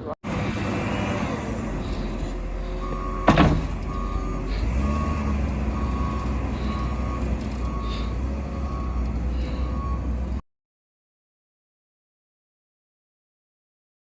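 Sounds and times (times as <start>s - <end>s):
low engine rumble: 0.0s - 10.4s
reversing alarm beeping: 1.8s - 10.2s.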